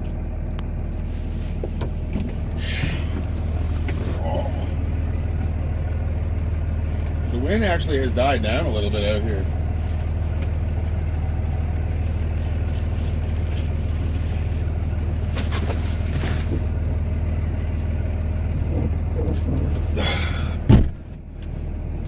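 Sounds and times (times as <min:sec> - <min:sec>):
diesel pickup engine drone: 0:00.0 - 0:22.0
loud thump: 0:20.7 - 0:21.0.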